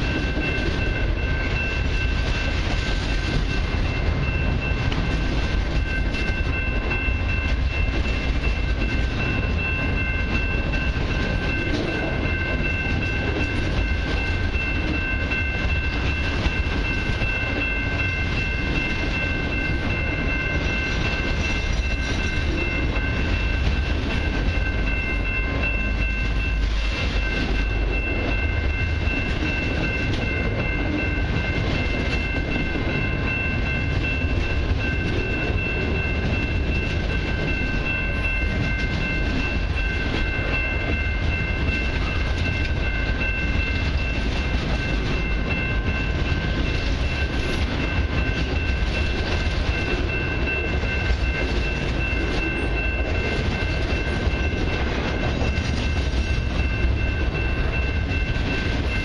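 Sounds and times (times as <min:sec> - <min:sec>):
freight train wheels rumbling on rail: 0:00.0 - 0:59.0
high-pitched ringing tones: 0:00.0 - 0:59.0.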